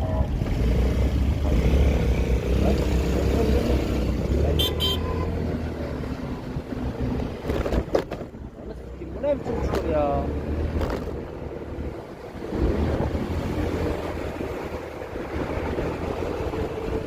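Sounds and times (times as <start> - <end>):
scooter engine rumble: 0.0 - 9.9.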